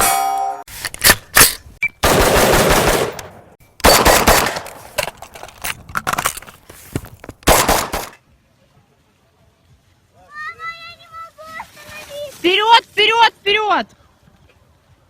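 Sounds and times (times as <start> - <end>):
sharp loud bangs: 0.0 - 5.0, 7.4 - 8.2.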